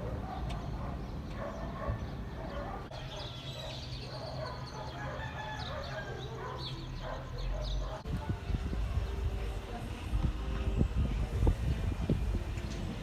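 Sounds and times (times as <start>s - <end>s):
rooster crowing: 5.0s - 6.4s.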